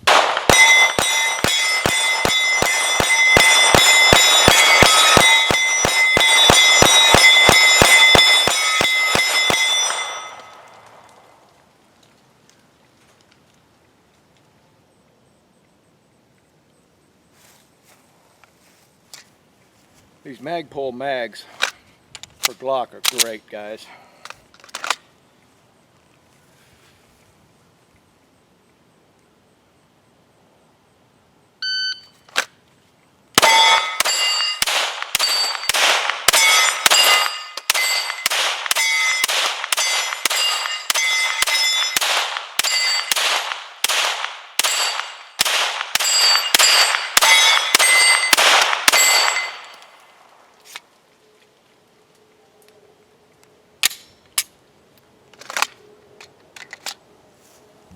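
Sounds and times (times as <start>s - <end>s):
pistol firing rapid shots: 0.0s - 11.0s, 33.4s - 49.8s
steel targets ringing: 0.1s - 11.1s, 33.4s - 50.0s
electronic beep: 31.6s - 32.2s.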